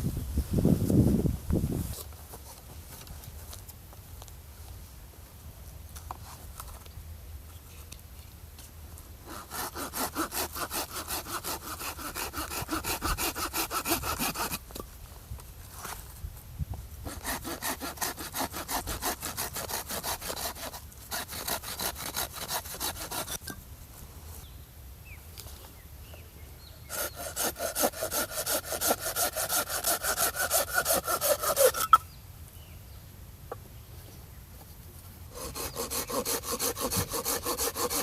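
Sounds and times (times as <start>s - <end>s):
hand saw cutting firewood: 9.2s - 14.8s, 17.0s - 23.6s, 26.9s - 32.0s, 35.3s - 38.0s.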